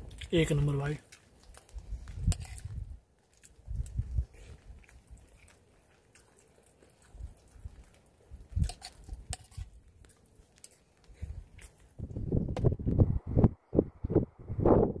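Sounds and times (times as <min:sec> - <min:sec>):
person chewing: 0:01.0 - 0:12.0.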